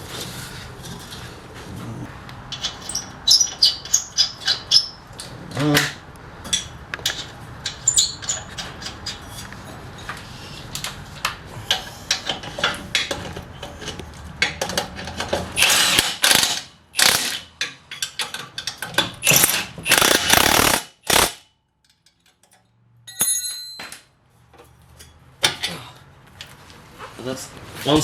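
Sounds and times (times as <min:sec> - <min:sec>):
impact wrench hammering: 0:15.6 - 0:17.5, 0:19.2 - 0:21.4
short metallic ring: 0:23.1 - 0:24.0.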